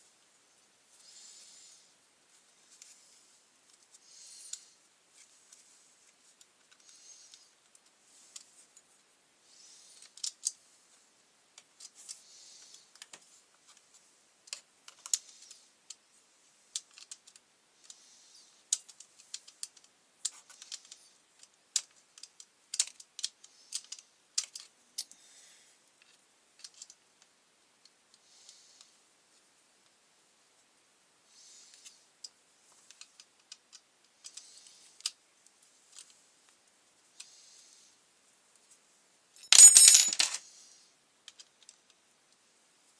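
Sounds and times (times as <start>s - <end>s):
tools clicking and knocking: 39.4s - 40.4s.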